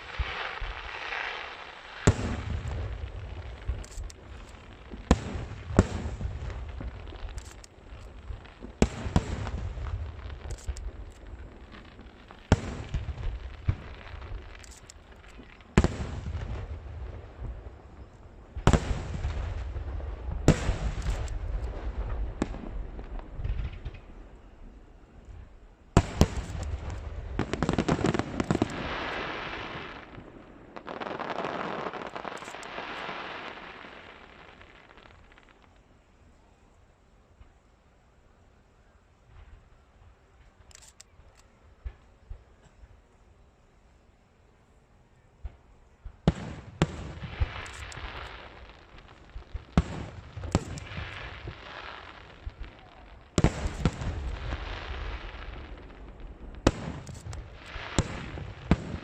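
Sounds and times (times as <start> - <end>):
fireworks bangs: 0.0 - 35.9, 45.4 - 59.0
volley of small pops: 3.4 - 16.1, 45.4 - 59.0.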